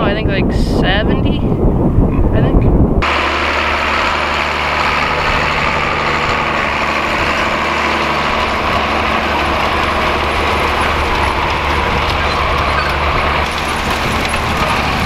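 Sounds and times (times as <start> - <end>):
tractor diesel engine running: 3.0 - 15.0.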